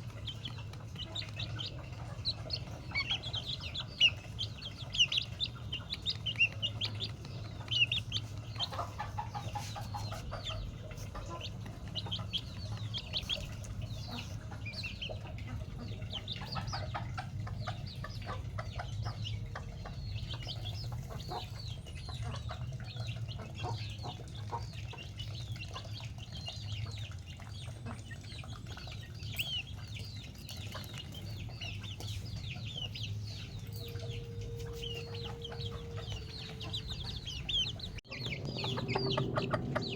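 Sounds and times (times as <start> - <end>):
chickens clucking: 0.0 - 39.9
low hum: 31.3 - 39.9
high chirps: 32.8 - 39.9.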